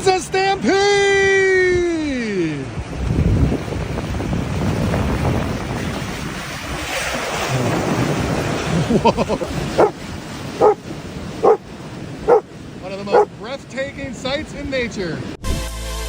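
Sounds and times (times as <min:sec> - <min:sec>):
short barking calls: 0:09.7 - 0:10.0, 0:10.6 - 0:10.8, 0:11.4 - 0:11.7, 0:12.3 - 0:12.5, 0:13.1 - 0:13.4.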